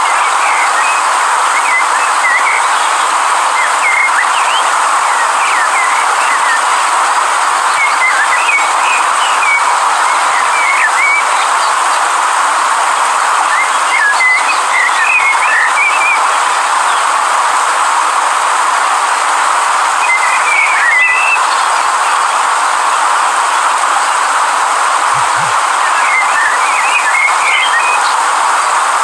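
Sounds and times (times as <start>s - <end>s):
river water rushing: 0.0s - 29.0s
bird chirping: 25.1s - 28.2s.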